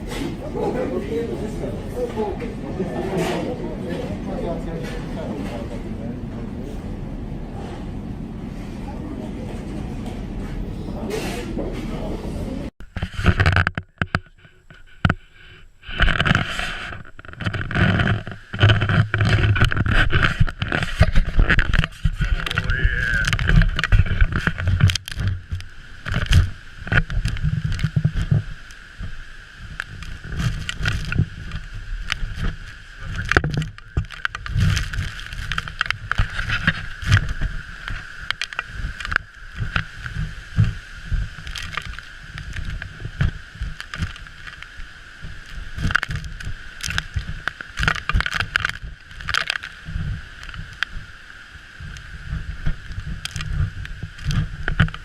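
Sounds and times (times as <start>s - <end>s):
steady high hum: 0.0s - 55.0s
heavy low rumbling: 15.7s - 47.5s.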